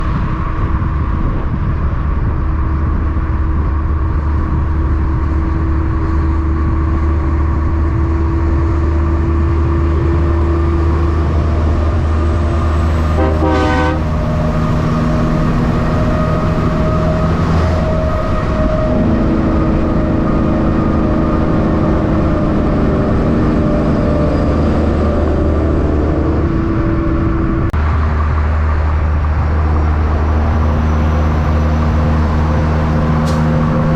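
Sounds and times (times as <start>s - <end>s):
diesel truck engines running: 0.0s - 33.9s
truck horn blast: 13.0s - 14.7s.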